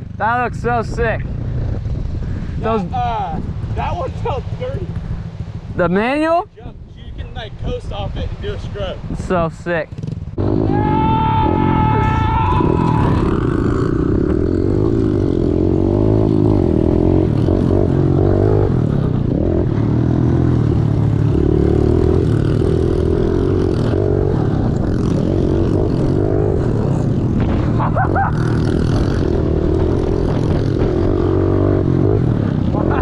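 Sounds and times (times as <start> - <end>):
pit bike engine revving: 9.8 - 33.0.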